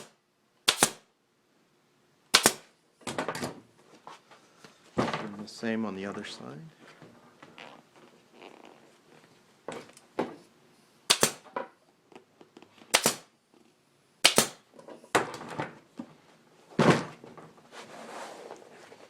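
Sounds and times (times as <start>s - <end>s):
staple gun snapping: 0.7s - 1.0s, 2.3s - 2.6s, 11.1s - 11.4s, 12.9s - 13.2s, 14.2s - 14.6s.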